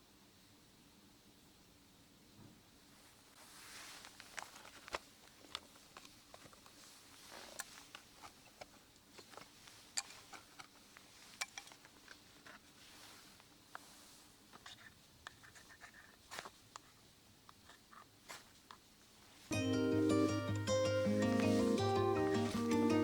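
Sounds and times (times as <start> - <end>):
soft rustling: 2.3 - 23.0
faint clicks and crackles: 3.4 - 19.6.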